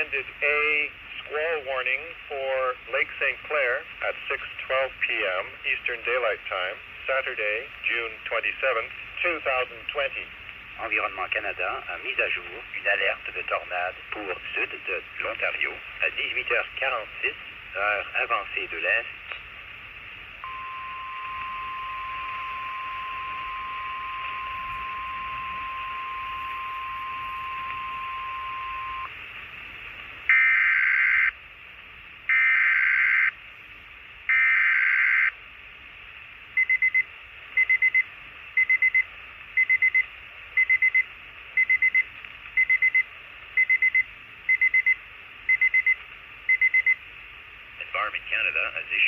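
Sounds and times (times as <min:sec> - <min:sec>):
short high beeps: 0:20.4 - 0:29.1
steady warning tone: 0:20.4 - 0:29.2.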